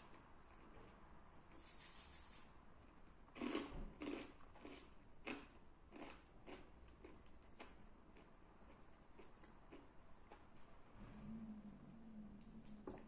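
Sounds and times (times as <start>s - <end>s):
crunchy chewing: 3.4s - 10.7s.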